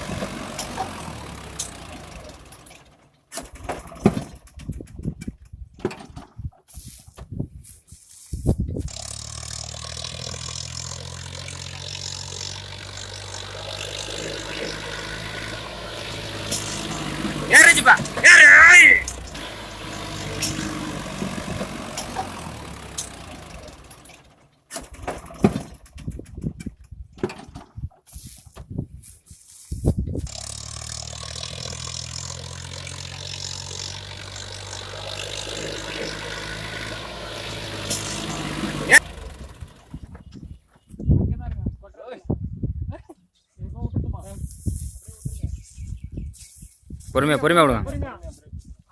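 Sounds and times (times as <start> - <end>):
tractor diesel engine running: 0.0 - 5.2, 8.8 - 26.4, 30.2 - 41.0.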